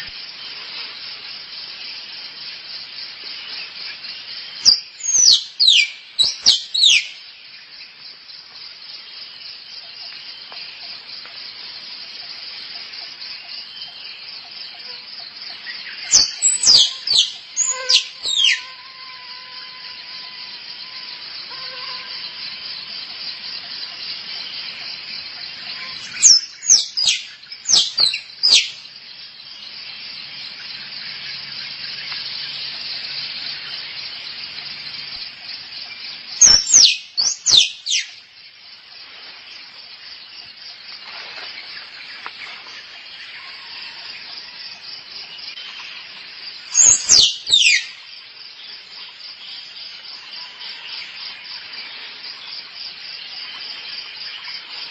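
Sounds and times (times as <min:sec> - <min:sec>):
high insect buzz: 0:00.0 - 0:07.2, 0:14.7 - 0:29.3, 0:36.4 - 0:38.2, 0:40.9 - 0:48.1
squirrel chirping: 0:04.7 - 0:07.1, 0:16.1 - 0:18.7, 0:26.1 - 0:28.7, 0:36.4 - 0:38.1, 0:46.8 - 0:47.9.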